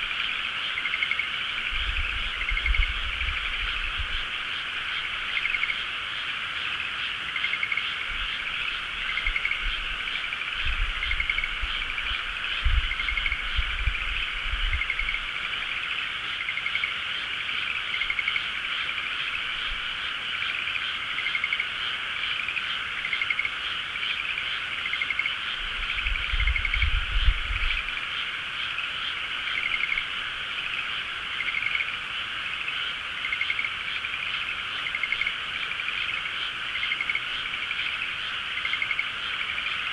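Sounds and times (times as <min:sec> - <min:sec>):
frog chorus: 0:00.0 - 0:39.9
pulsed frog croaks: 0:00.0 - 0:39.9.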